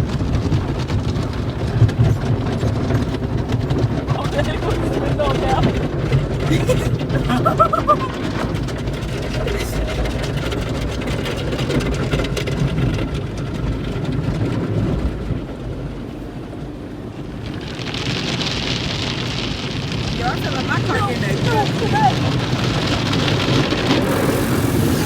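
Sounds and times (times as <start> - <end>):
low rumble of wash machinery: 0.0 - 25.0
water spraying: 17.6 - 25.0.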